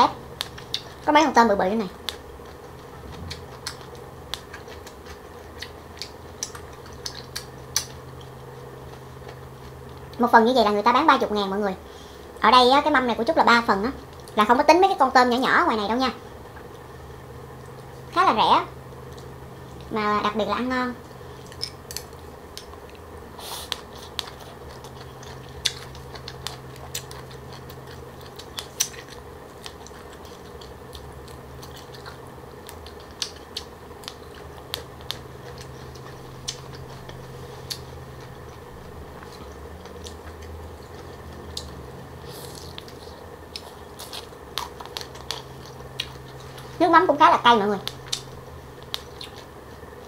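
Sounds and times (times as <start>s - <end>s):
steady low hum: 0.0s - 50.0s
chewing and biting salad: 0.2s - 1.1s, 2.0s - 10.2s, 21.3s - 46.8s, 47.8s - 50.0s.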